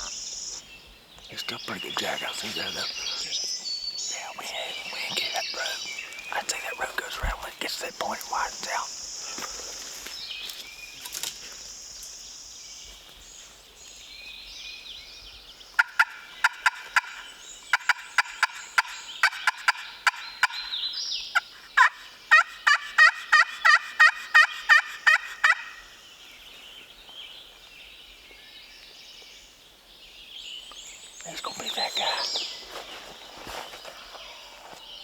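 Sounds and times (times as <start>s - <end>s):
faint songbird chirps: 0.0s - 35.0s
turkey yelps: 21.4s - 25.8s.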